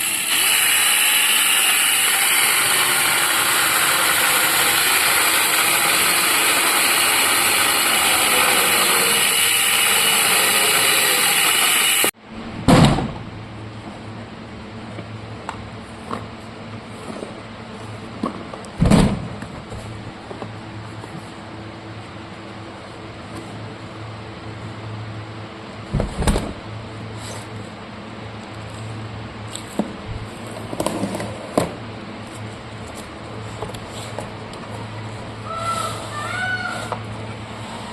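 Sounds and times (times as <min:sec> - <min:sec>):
chainsaw running: 0:00.0 - 0:12.2.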